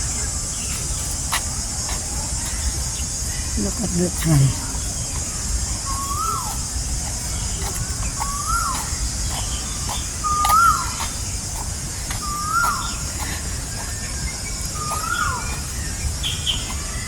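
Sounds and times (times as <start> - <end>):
high-pitched insect hiss: 0.0 - 17.0
bird whistled call: 5.9 - 6.6, 8.2 - 8.9, 10.2 - 11.1, 12.2 - 13.0, 13.8 - 17.0.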